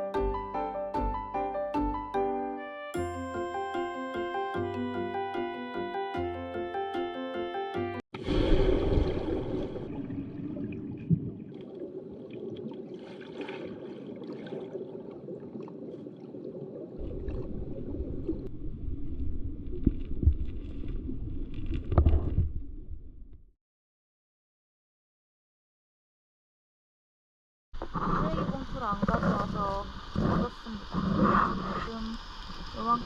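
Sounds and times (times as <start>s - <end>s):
muffled water sloshing: 8.2s - 23.2s
low rumble: 17.0s - 23.5s.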